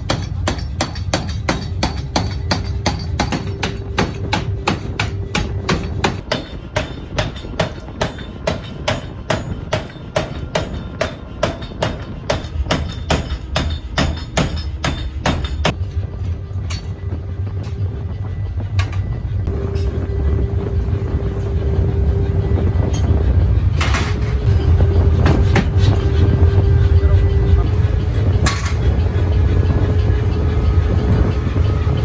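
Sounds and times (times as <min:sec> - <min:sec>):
machinery hum: 0:00.0 - 0:06.2, 0:13.2 - 0:32.0.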